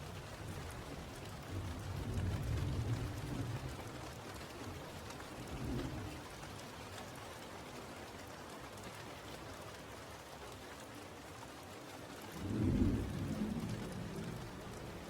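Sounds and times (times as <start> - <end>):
steady rain: 0.0 - 15.0
thunder rumble: 12.4 - 15.0.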